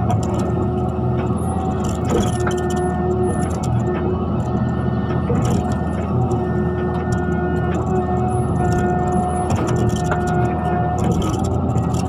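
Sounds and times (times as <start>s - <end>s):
excavator engine running: 0.0s - 12.0s.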